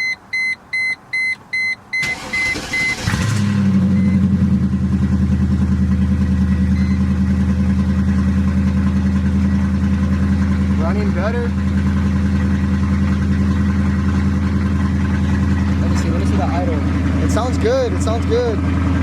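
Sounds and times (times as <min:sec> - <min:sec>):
car chime beeping: 0:00.0 - 0:03.1
starter motor cranking: 0:02.0 - 0:03.7
car engine idling: 0:02.0 - 0:19.0.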